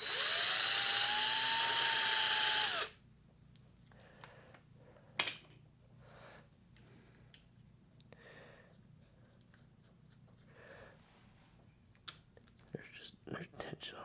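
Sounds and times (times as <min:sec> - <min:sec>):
cordless drill motor whine: 0:00.0 - 0:03.0.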